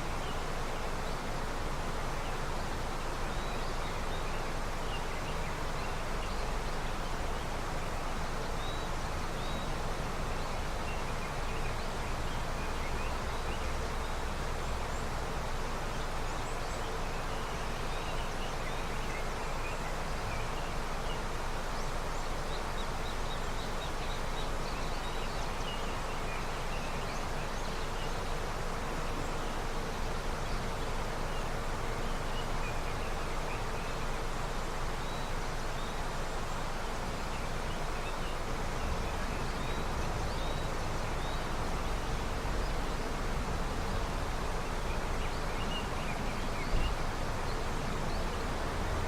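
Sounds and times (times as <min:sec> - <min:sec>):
river water rushing: 0:00.0 - 0:49.0.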